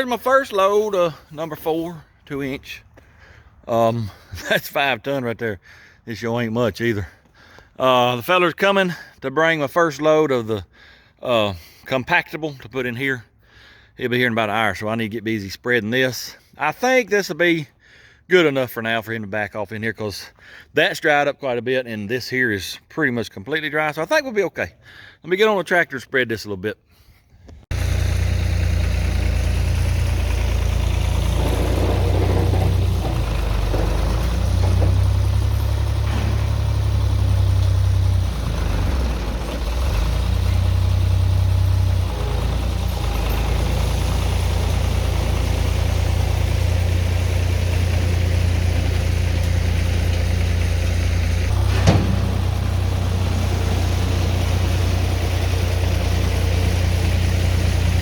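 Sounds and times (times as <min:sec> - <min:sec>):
tractor diesel engine running: 0:00.0 - 0:04.9, 0:27.7 - 0:58.0.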